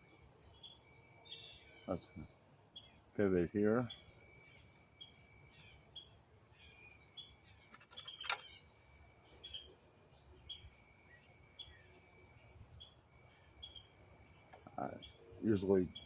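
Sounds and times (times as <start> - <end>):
faint insect drone: 0.0 - 16.0
high bird chirps: 3.8 - 8.8
sharp click: 7.7 - 8.5.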